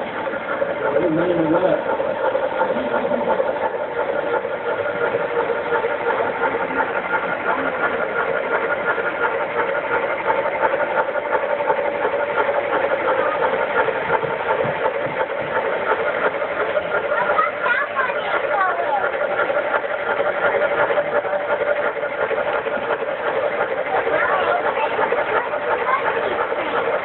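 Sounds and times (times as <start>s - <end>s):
model train motor whine: 0.0s - 27.0s
wheels clicking on track: 0.0s - 27.0s.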